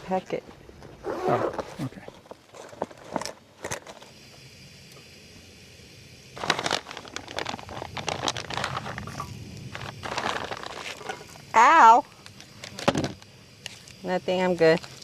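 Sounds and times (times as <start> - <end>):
plastic packaging crinkling: 6.4 - 11.4, 12.2 - 14.0, 14.6 - 15.0.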